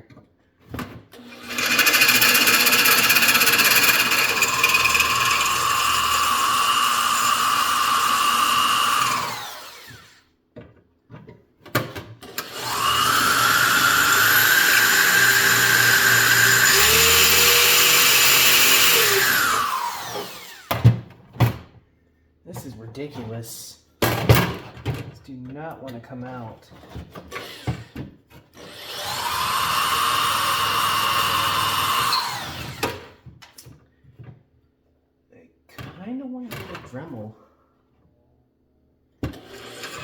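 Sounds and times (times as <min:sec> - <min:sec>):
electric drill drilling rivets: 0:01.2 - 0:10.2, 0:12.2 - 0:20.8, 0:28.6 - 0:33.1, 0:39.3 - 0:40.0.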